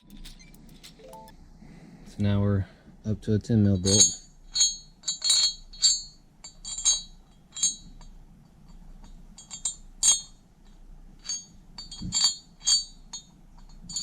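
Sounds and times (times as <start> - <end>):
metal tools clinking: 0.0 - 1.3, 11.2 - 14.0.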